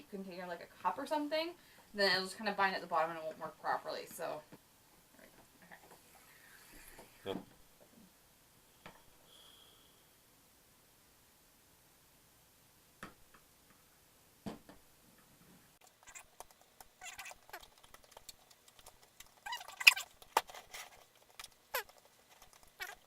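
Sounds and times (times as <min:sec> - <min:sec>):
sticky slime squelching: 0:15.8 - 0:23.0.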